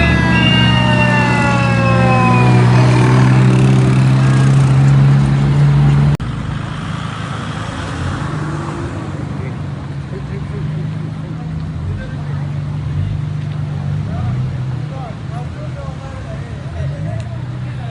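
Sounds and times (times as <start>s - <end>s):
falling high tone: 0.0s - 3.5s
car engines humming: 0.0s - 17.9s
road vehicle noise: 0.0s - 17.9s.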